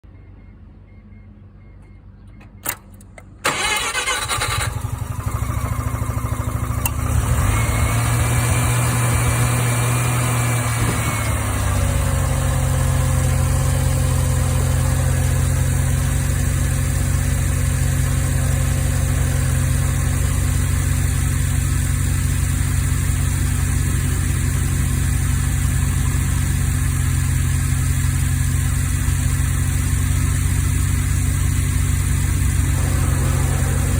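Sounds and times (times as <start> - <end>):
engine starter cranking: 2.6 - 7.0
rotary engine idling: 3.5 - 33.9.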